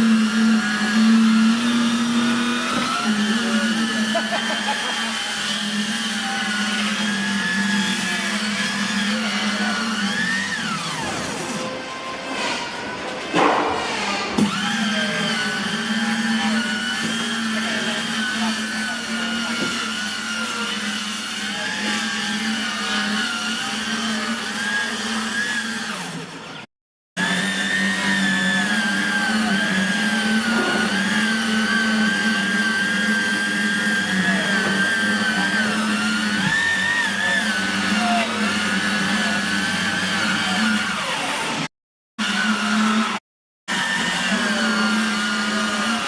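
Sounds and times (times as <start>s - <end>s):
electric power tool motor whine: 0.0s - 13.0s, 14.3s - 46.0s.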